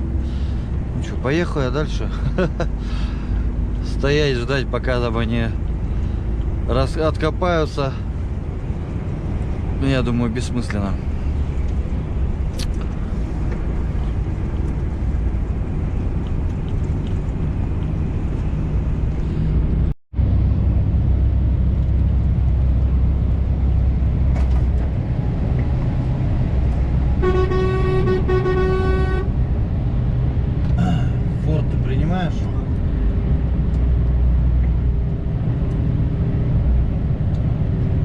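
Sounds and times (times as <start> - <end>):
diesel engine and road drone: 0.0 - 38.0
truck horn blasts: 27.2 - 29.4.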